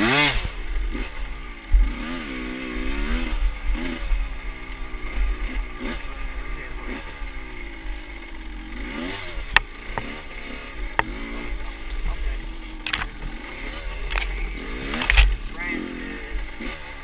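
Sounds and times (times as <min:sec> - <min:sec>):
motorcycle engine revving: 0:00.0 - 0:17.0
sharp clicks: 0:13.9 - 0:15.4.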